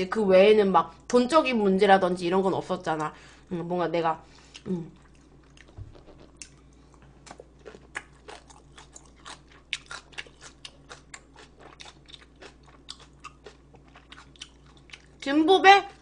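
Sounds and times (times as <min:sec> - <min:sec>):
chewing crunchy food: 0:04.5 - 0:15.3.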